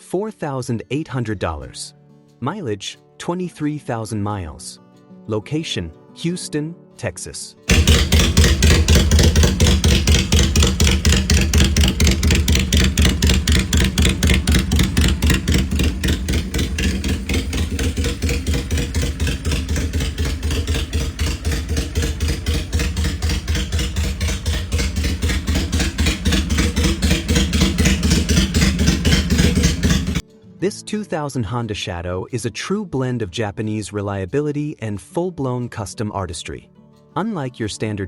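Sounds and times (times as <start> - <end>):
motorcycle engine idling: 7.7 - 30.2.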